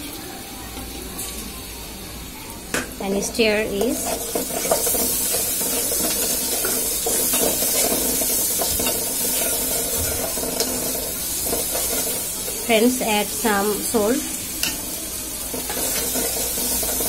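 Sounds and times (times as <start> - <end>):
food sizzling in hot oil: 0.1 - 17.0
metal spoon scraping and tapping pot: 3.8 - 10.8.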